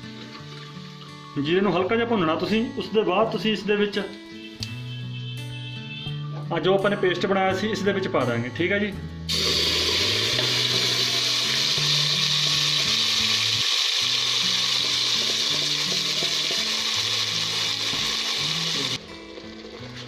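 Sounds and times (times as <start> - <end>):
background music with low notes: 0.0 - 20.0
paste sizzling in hot oil: 9.3 - 20.0.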